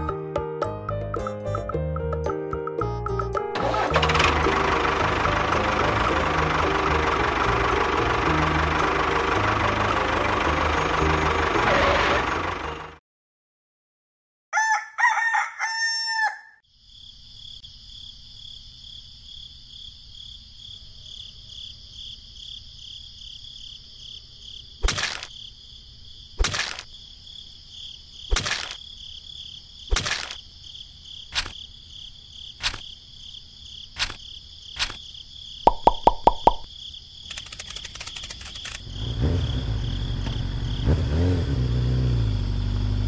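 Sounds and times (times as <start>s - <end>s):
rooster crowing: 14.5s - 16.6s.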